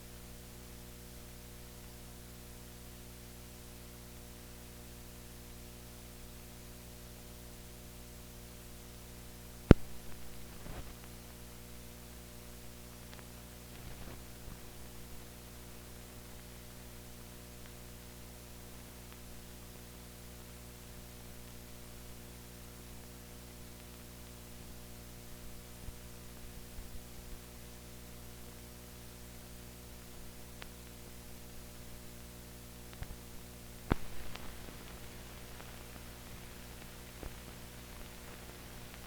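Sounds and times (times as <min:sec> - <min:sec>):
electrical mains hum: 0:00.0 - 0:39.0
faint hiss: 0:07.6 - 0:39.0
faint crackles: 0:09.6 - 0:11.7, 0:12.5 - 0:27.7, 0:29.3 - 0:39.0.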